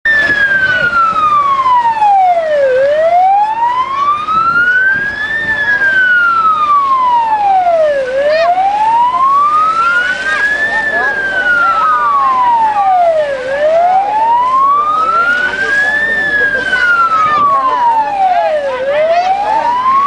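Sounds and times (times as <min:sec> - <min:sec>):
siren wailing: 0:00.1 - 0:20.0.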